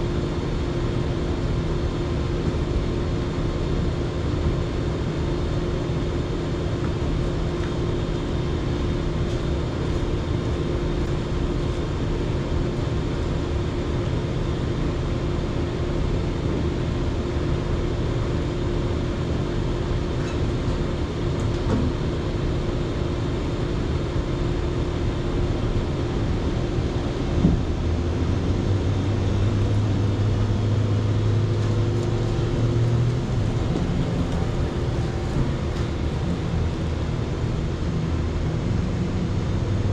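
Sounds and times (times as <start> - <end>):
engine running steadily: 0.0 - 39.9
deeper hum: 19.4 - 39.9.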